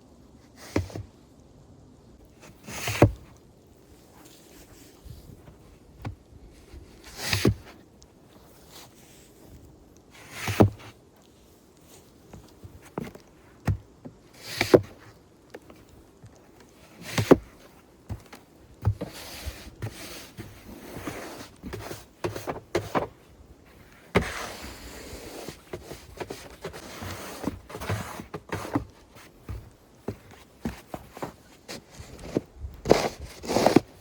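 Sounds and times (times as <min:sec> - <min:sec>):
footsteps in snow: 0:16.7 - 0:34.0
shovel scraping snow: 0:18.9 - 0:23.1, 0:23.8 - 0:29.3, 0:30.1 - 0:34.0.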